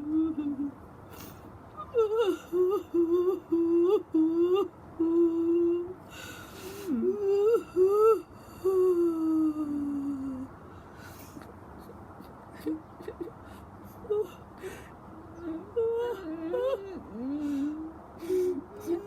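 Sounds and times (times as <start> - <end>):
woman mock crying: 11.2 - 19.0.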